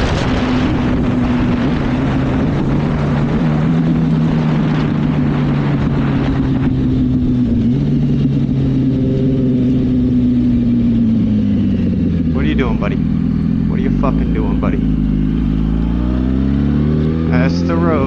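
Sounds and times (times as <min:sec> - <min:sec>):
wind rush on microphone: 0:00.0 - 0:13.7
motorcycle engine running: 0:00.0 - 0:18.0.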